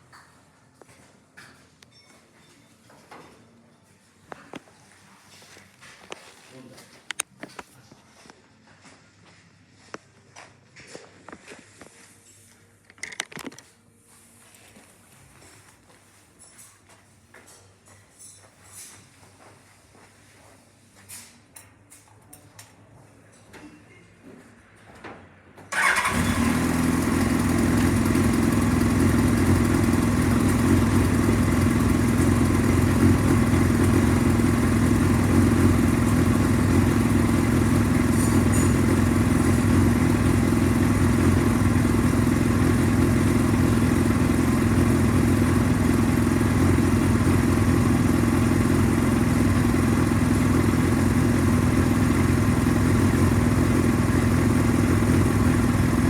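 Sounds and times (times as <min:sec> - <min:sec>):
motorcycle engine starting and idling: 0:25.7 - 0:56.0.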